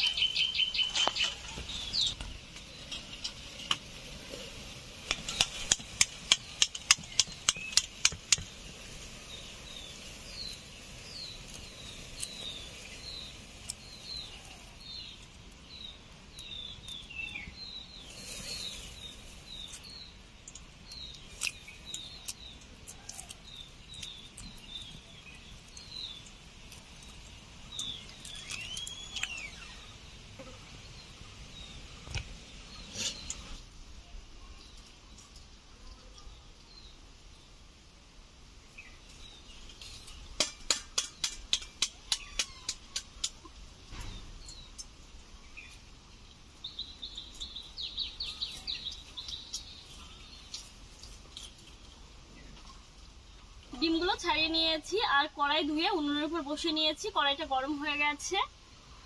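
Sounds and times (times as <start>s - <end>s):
small birds chirping: 0.0s - 59.0s
eggs being cracked with sharp taps: 5.1s - 8.5s, 40.4s - 43.6s.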